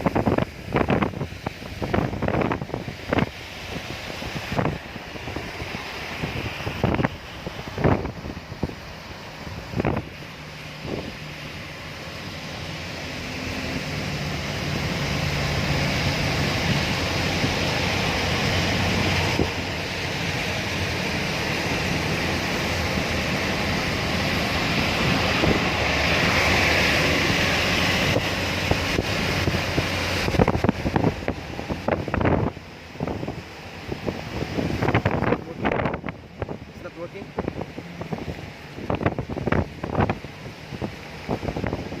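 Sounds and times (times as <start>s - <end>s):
heavy rain: 0.0s - 42.0s
wind: 0.0s - 42.0s.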